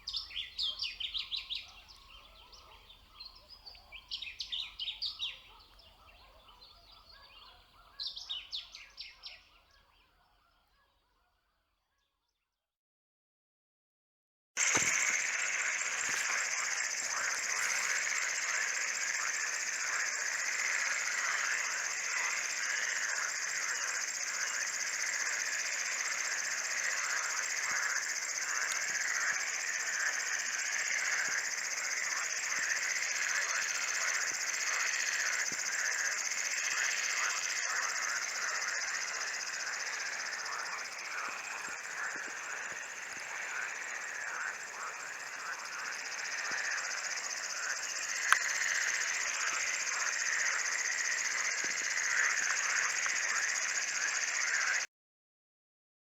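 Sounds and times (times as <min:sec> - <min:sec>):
high insect trill: 0:14.6 - 0:54.8
short insect chirps: 0:14.6 - 0:54.9.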